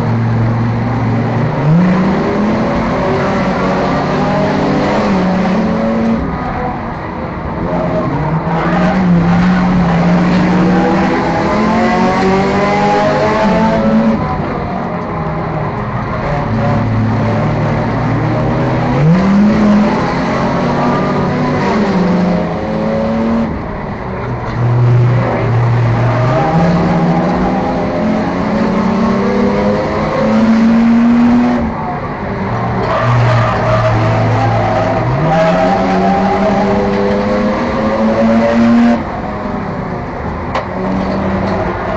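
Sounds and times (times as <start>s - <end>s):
race car engine revving: 0.0s - 41.9s.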